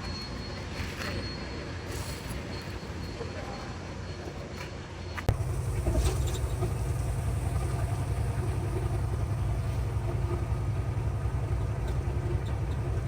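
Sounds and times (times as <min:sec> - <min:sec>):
diesel truck engine idling: 0:05.3 - 0:13.0.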